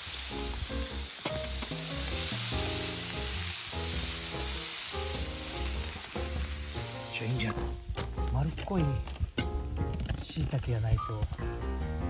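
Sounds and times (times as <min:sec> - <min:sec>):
food sizzling in a pan: 0:00.0 - 0:08.2
background music: 0:00.0 - 0:12.0.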